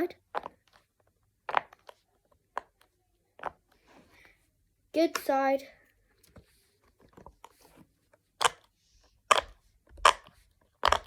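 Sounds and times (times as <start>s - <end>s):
pop-it toy bubbles popping: 8.4s - 8.7s, 9.3s - 11.0s.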